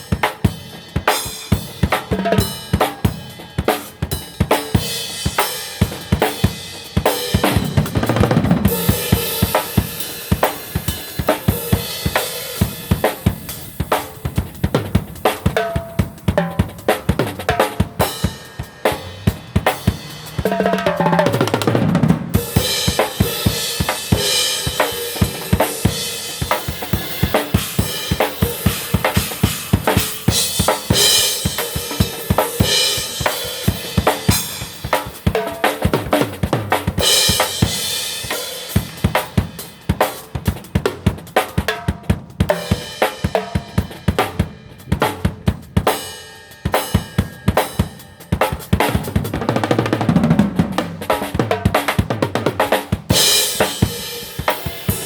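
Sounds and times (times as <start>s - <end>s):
drum kit groove: 0.0s - 55.0s
cymbals washing: 18.0s - 36.4s.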